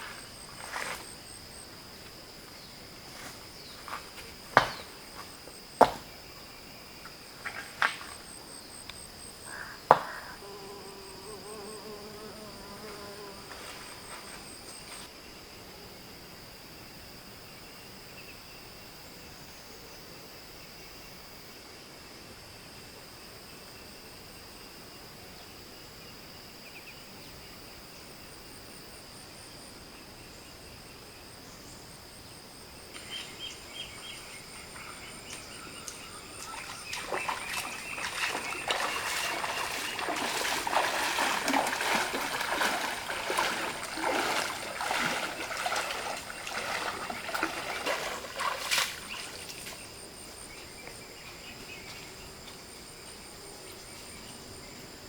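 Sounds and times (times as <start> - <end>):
insect chirring: 0.0 - 15.1, 32.2 - 53.2
small knocks: 4.5 - 6.1
water splashing in a stream: 34.7 - 50.0.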